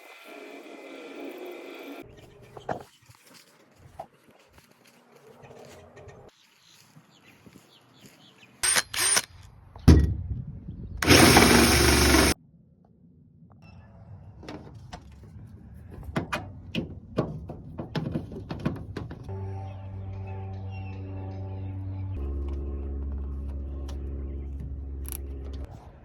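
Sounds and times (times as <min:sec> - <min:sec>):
loud noisy bursts: 0:11.0 - 0:12.4
music: 0:19.3 - 0:26.0.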